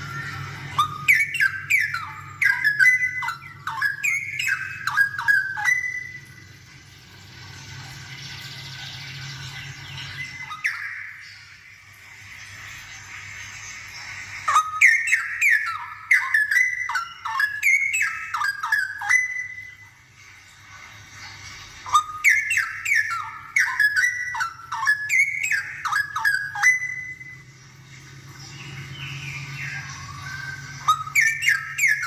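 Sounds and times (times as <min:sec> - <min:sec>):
bird singing whistled phrases: 0:00.0 - 0:06.5, 0:09.2 - 0:11.6, 0:14.4 - 0:20.0, 0:21.8 - 0:27.5, 0:28.6 - 0:32.0.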